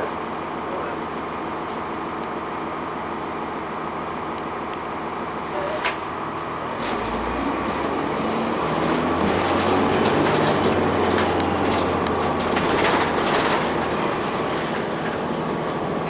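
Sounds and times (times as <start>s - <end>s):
bus diesel engine from inside: 0.0s - 16.0s
bus body clicks and rattles: 5.5s - 16.0s.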